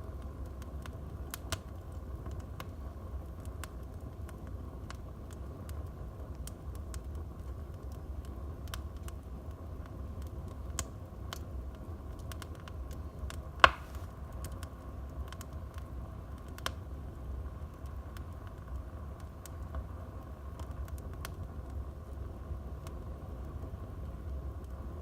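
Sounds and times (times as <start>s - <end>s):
wood fire crackling: 0.0s - 25.0s
loud pop from fire: 13.5s - 14.2s.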